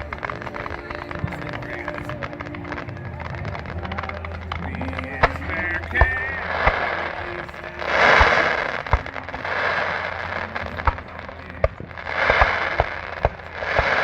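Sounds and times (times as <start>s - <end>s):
fireworks banging: 0.0s - 14.0s
fireworks hissing: 0.0s - 14.0s.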